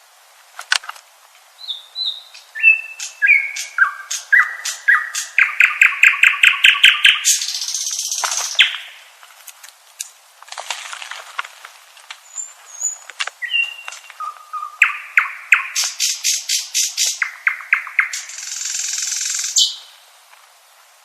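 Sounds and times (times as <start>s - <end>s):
nightingale singing: 1.5s - 9.1s, 12.2s - 20.2s.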